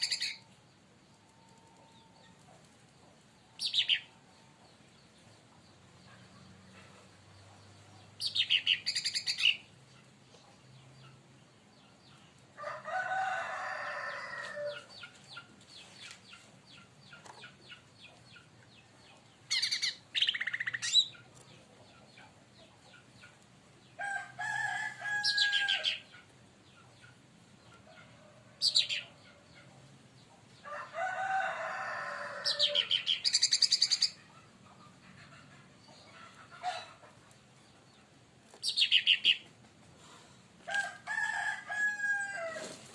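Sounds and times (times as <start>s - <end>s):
bird singing trilled phrases: 38.6s - 39.4s.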